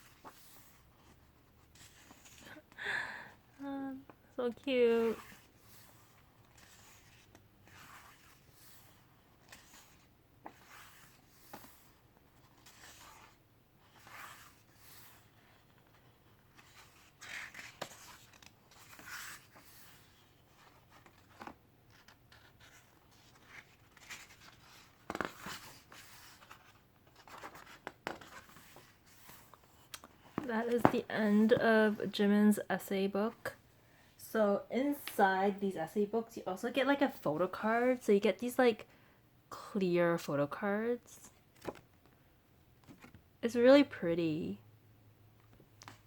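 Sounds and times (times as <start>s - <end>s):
book pages turning: 0.0s - 2.6s, 5.0s - 32.0s, 41.5s - 42.1s, 42.8s - 43.2s.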